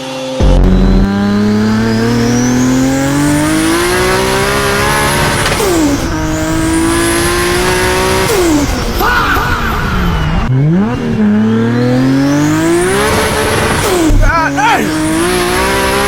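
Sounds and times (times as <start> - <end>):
car engine accelerating: 0.0 - 16.0
turbo whistle: 0.4 - 4.6.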